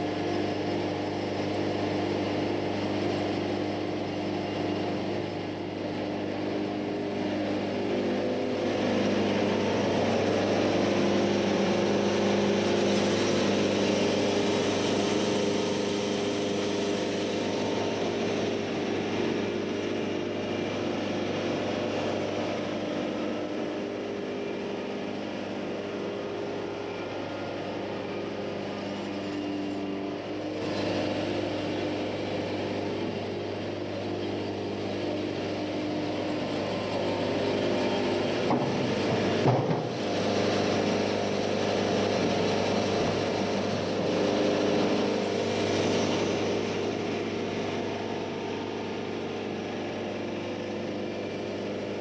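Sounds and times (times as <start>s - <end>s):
sawmill diesel engine running: 0.0s - 52.0s.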